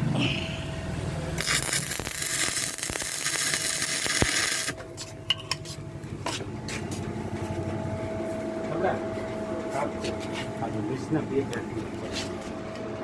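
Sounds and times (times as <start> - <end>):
welding arc crackling and sizzling: 1.4 - 4.8.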